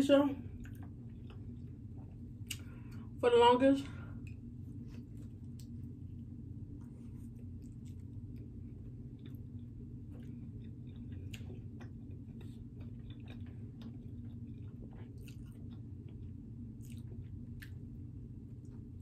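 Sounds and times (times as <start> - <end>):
steady low hum: 0.0 - 19.0
person biting and chewing pizza: 6.8 - 17.9.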